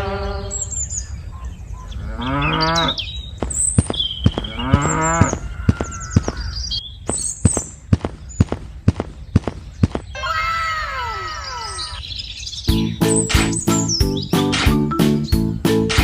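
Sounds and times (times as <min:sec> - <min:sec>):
birds chirping: 0:00.0 - 0:16.0
cattle mooing: 0:02.0 - 0:03.1, 0:04.5 - 0:06.3.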